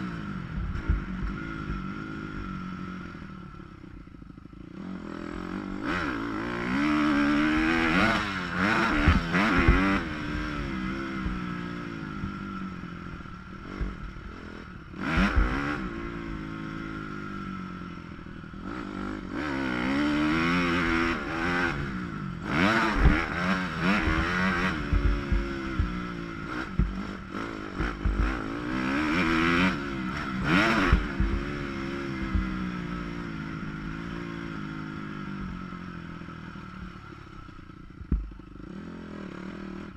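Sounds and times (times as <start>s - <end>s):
muffled dirt bike engine revving: 0.0s - 39.9s
sharp thumps: 15.1s - 15.8s, 24.0s - 28.7s, 30.1s - 32.8s, 38.0s - 38.4s.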